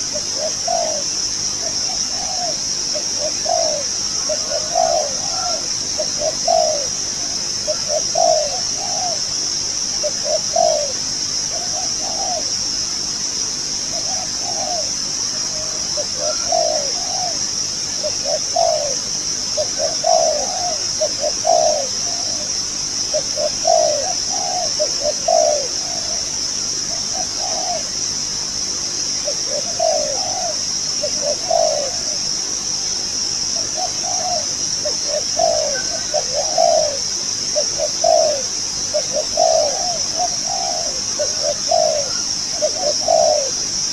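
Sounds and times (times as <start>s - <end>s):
dove cooing: 0.0s - 12.7s, 13.8s - 28.2s, 29.1s - 43.9s.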